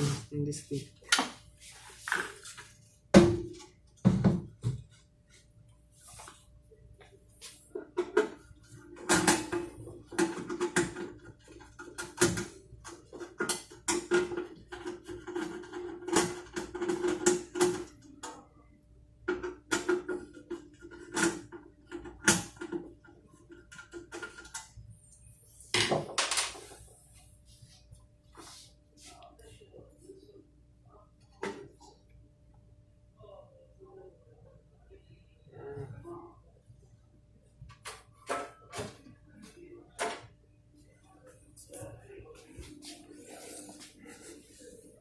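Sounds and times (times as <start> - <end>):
metal water boiler clattering: 9.0 - 17.9.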